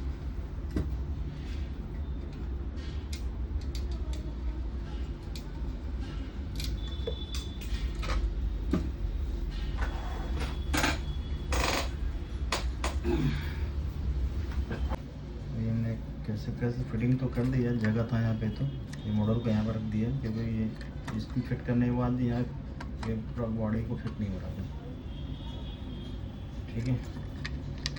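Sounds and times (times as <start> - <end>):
steady low hum: 0.0 - 27.9
clicks and knocks of tools: 3.1 - 4.2, 26.7 - 27.9.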